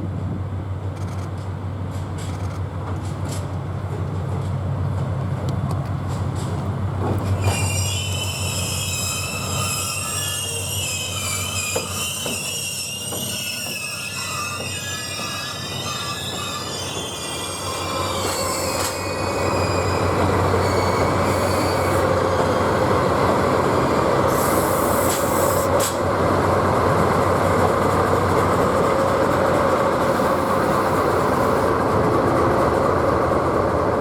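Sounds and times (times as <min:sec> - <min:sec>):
wheels squealing on rails: 0:06.1 - 0:26.1, 0:26.9 - 0:31.8.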